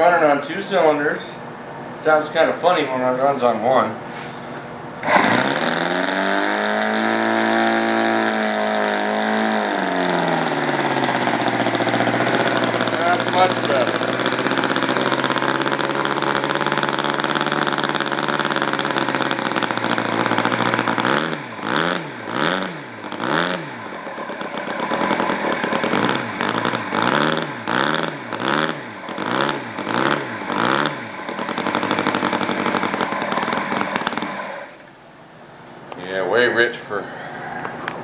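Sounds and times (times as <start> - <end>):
model airplane engine revving: 5.0 - 34.9.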